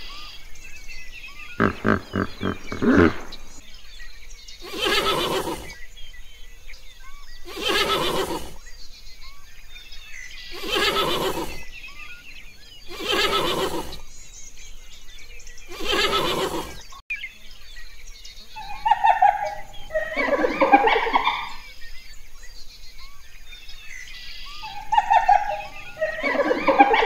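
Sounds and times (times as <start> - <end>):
small birds chirping: 0.0 - 27.0
horse neighing: 1.6 - 3.6, 4.6 - 5.8, 7.5 - 8.6, 10.6 - 11.6, 12.9 - 14.0, 15.7 - 16.8, 18.6 - 21.2, 24.7 - 27.0.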